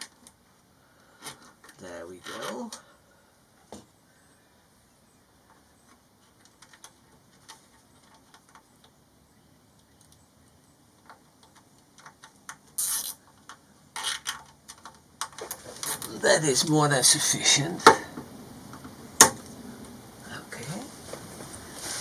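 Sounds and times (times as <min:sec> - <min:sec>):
faint clicks and handling noises: 0:05.4 - 0:09.0, 0:10.9 - 0:16.1
loud scratchy rasps: 0:12.7 - 0:13.3.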